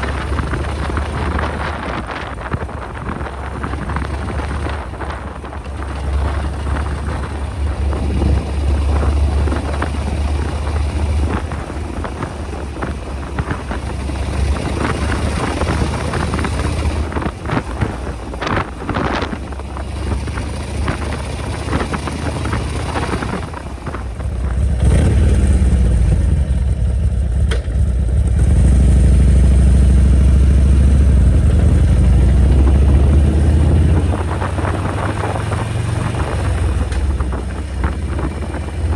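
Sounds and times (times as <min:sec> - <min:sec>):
wind noise: 0:00.0 - 0:27.2, 0:27.8 - 0:38.9
motorcycle engine running: 0:00.0 - 0:38.9.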